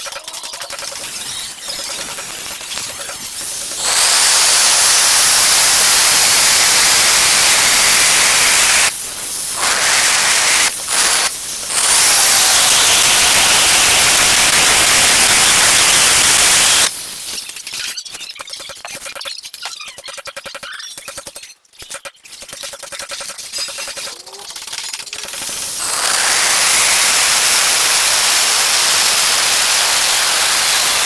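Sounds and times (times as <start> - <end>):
angle grinder cutting tile: 0.0 - 8.9, 9.5 - 16.9, 23.0 - 31.0.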